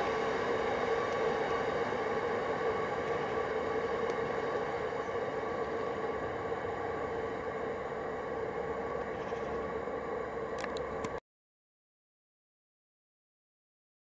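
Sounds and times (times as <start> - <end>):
freight train rumbling: 0.0 - 11.2.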